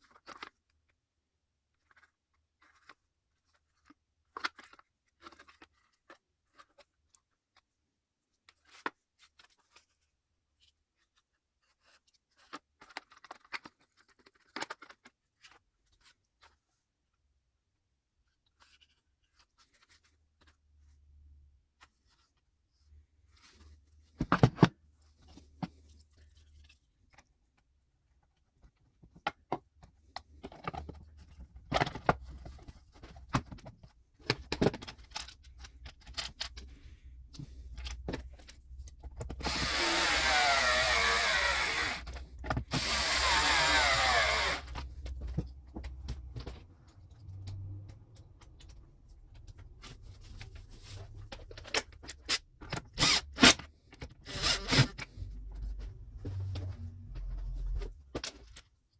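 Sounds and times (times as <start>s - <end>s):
cordless chainsaw whirring: 39.3s - 45.2s, 52.9s - 55.3s.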